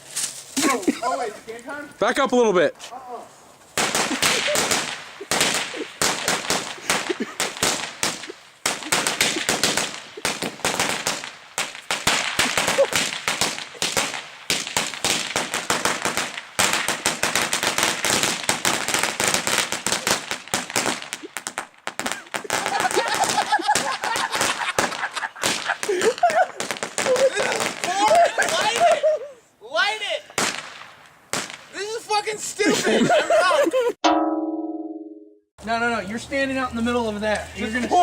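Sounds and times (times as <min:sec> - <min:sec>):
firecrackers popping: 0:00.0 - 0:01.9, 0:03.5 - 0:29.2, 0:30.3 - 0:32.4.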